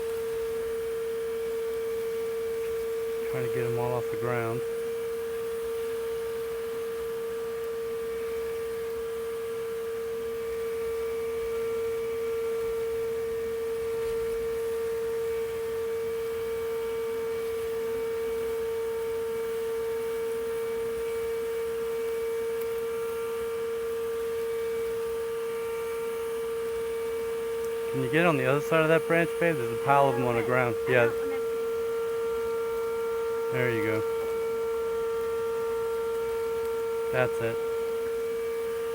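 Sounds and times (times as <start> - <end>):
vacuum motor whine: 0.0 - 38.9.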